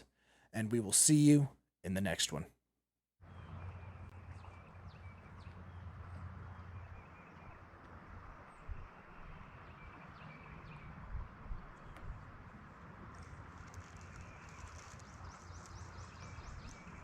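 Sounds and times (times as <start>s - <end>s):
bird chirps: 14.0s - 17.0s.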